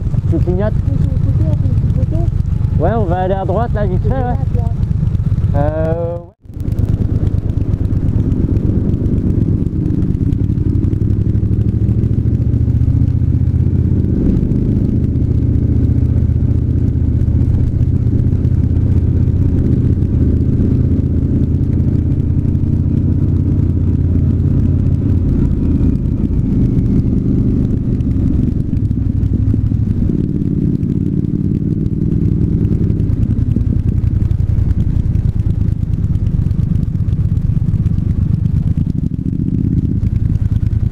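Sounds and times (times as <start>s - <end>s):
motorcycle engine revving: 0.0s - 40.9s
wind and road noise: 0.0s - 40.9s.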